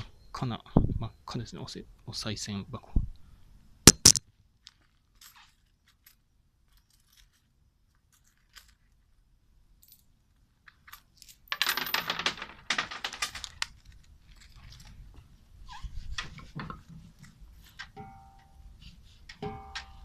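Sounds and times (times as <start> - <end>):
sharp knock: 3.9 - 4.2
coins rattling into wooden box: 8.1 - 8.9, 10.9 - 13.7.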